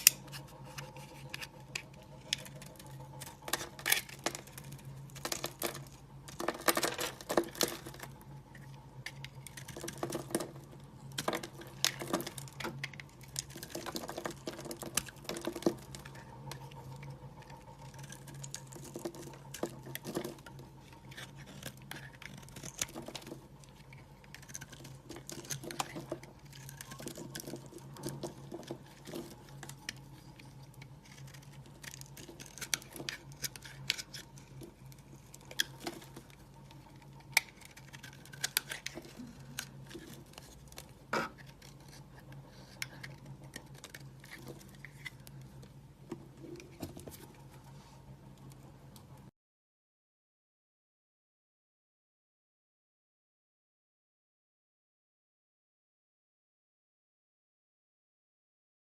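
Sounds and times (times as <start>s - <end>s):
low steady hum: 0.0s - 49.3s
soap crackling and clicking: 21.1s - 45.5s.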